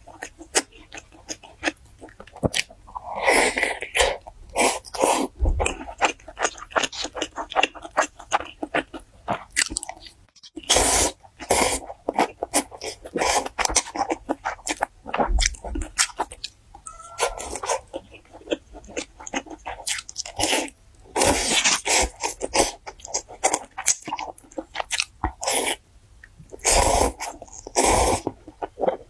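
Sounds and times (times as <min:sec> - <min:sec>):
chewing crunchy food: 0:00.0 - 0:29.0.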